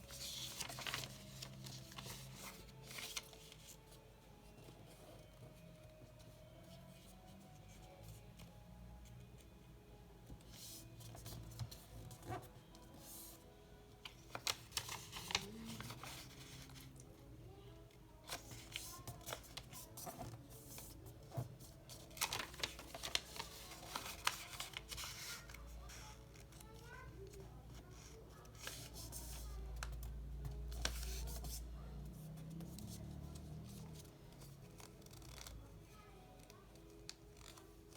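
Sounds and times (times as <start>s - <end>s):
paper crinkling and creasing: 0.0s - 5.3s, 14.0s - 17.0s, 18.2s - 31.7s, 32.3s - 37.9s
faint background music: 0.0s - 37.9s
paper creasing clicks: 34.6s - 35.6s, 36.4s - 37.9s.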